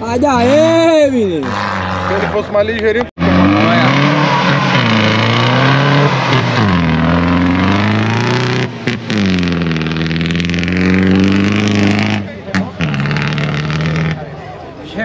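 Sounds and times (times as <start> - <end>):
engine revving hard: 3.2 - 14.2.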